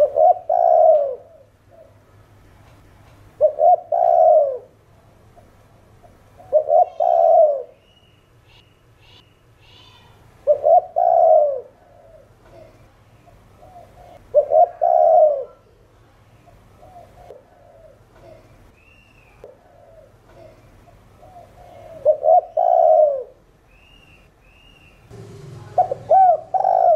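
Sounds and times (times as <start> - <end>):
dove cooing: 0.0 - 2.0, 3.4 - 4.8, 6.3 - 7.8, 9.8 - 15.8, 16.5 - 18.6, 19.4 - 23.4, 25.7 - 26.9.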